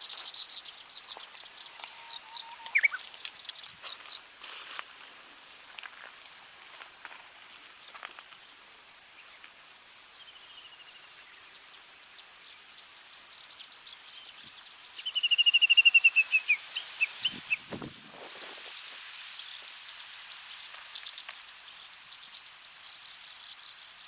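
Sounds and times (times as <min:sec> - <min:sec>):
outdoor hiss: 0:00.0 - 0:24.0
bird calling: 0:00.8 - 0:04.2, 0:15.0 - 0:17.8.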